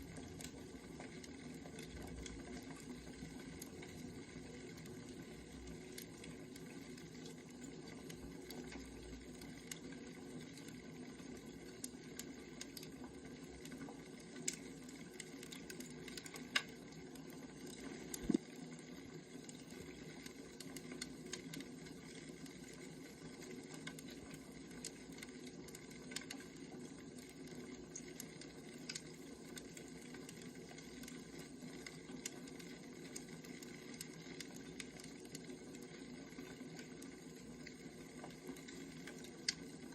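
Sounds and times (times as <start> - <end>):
wood fire hissing: 0.0 - 9.8, 10.8 - 22.6
fire crackles and pops: 0.0 - 39.9.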